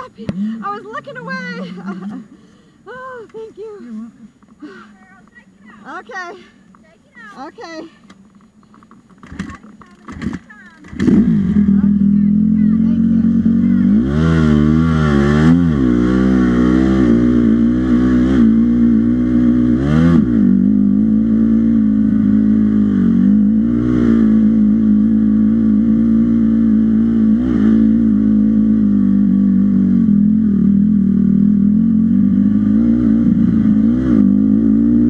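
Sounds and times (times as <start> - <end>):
dirt bike engine revving: 9.1 - 35.0.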